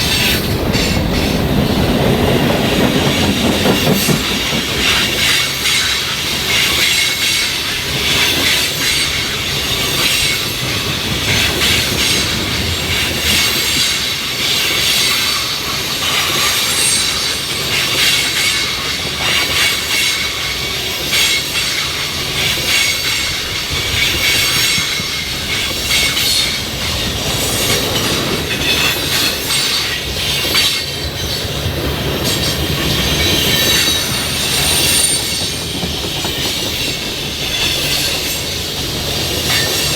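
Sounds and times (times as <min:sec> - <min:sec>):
steel wheels clicking over rail joints: 0:00.0 - 0:39.9
high wheel squeal: 0:32.3 - 0:38.5.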